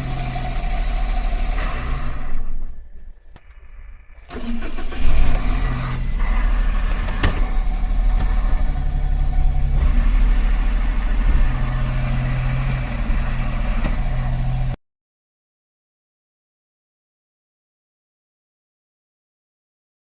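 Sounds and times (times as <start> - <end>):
car engine idling: 0.0 - 14.8.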